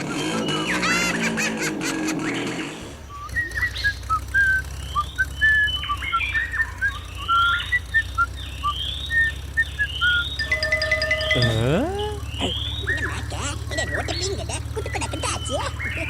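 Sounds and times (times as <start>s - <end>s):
whistle-like chirps: 3.1s - 13.0s.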